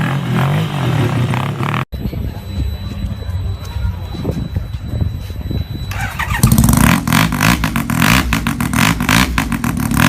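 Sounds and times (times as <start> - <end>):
motorcycle rotary engine running: 5.6 - 10.0.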